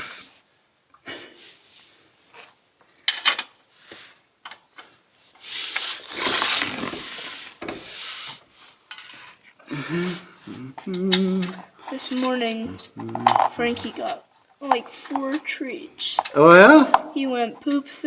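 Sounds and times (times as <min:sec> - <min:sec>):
metal parts scraping: 0:03.1 - 0:03.5, 0:04.4 - 0:10.2, 0:10.8 - 0:17.3.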